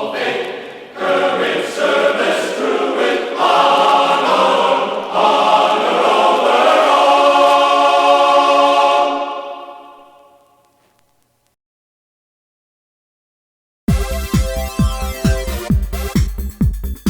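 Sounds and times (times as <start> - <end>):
choir singing with accompaniment: 0.0 - 10.6.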